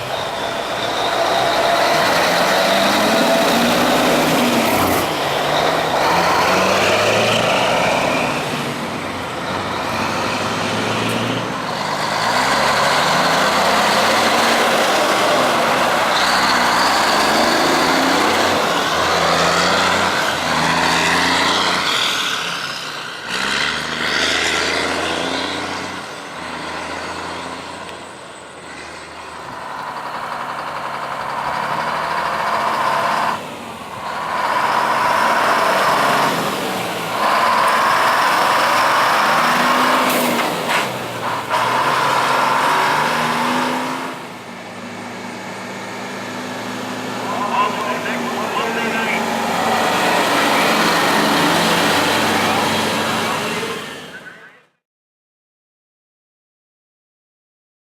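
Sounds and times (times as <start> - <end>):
diesel truck engines revving: 0.0 - 54.6.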